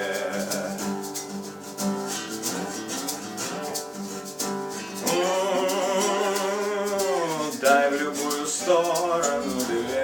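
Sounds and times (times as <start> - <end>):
man singing: 0.0 - 1.3, 4.9 - 10.0
acoustic guitar playing: 0.0 - 10.0
shaker ticking: 0.0 - 10.0.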